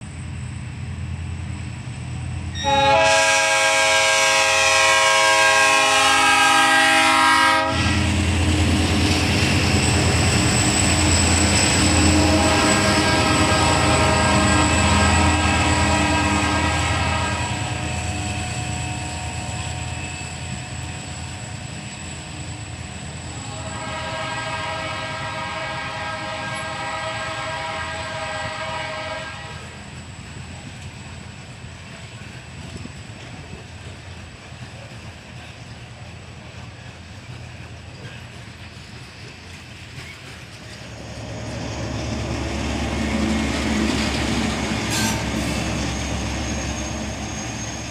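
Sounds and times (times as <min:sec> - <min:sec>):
train engine rumble: 0:00.0 - 0:47.9
locomotive air horn blasts: 0:02.6 - 0:08.2, 0:11.9 - 0:18.0, 0:23.3 - 0:29.8, 0:44.6 - 0:45.8
wheels clacking on rails: 0:07.0 - 0:23.5, 0:29.6 - 0:47.9.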